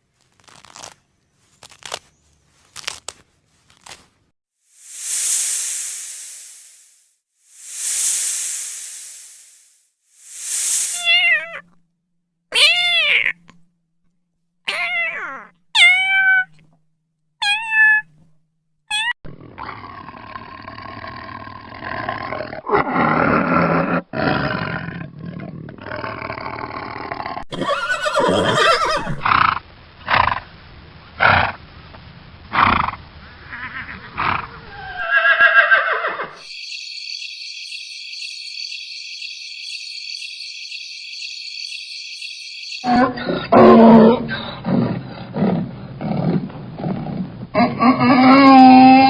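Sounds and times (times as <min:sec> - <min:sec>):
cat meowing: 0:11.0 - 0:11.8, 0:12.5 - 0:13.5, 0:14.7 - 0:16.6, 0:17.4 - 0:18.1
large animal roaring and grunting: 0:19.3 - 0:27.4, 0:42.9 - 0:49.0
crickets chirping: 0:36.3 - 0:43.5.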